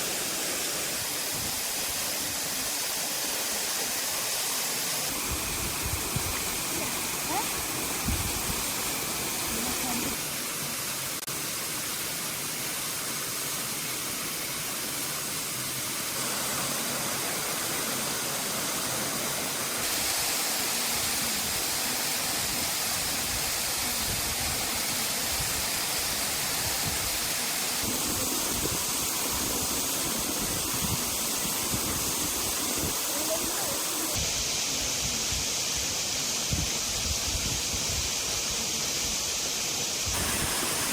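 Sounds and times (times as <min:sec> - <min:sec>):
heavy rain falling: 0:40.1 - 0:40.9.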